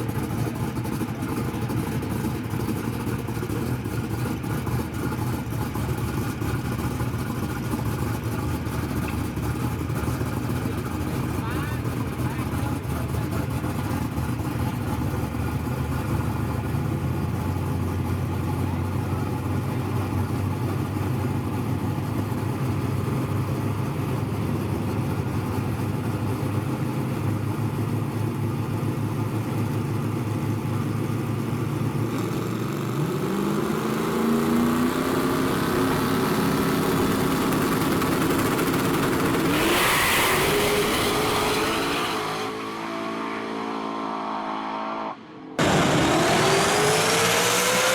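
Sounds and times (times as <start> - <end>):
drag race car engines rumbling: 0.0 - 47.9
car accelerating hard: 31.9 - 47.9
loud rush of noise: 45.6 - 47.9.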